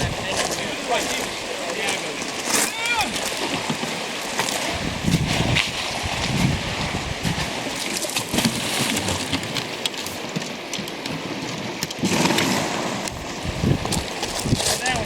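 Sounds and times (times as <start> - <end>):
river water splashing: 0.0 - 15.0
knocks and scrapes: 13.6 - 15.0.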